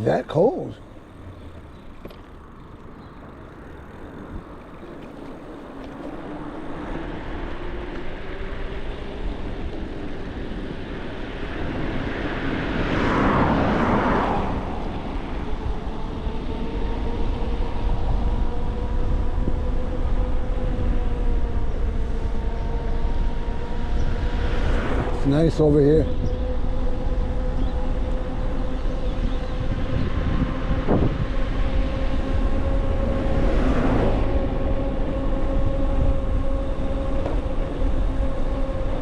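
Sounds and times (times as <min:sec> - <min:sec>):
passing vehicle: 0:00.0 - 0:39.0
wind rumbling on microphone: 0:00.0 - 0:39.0.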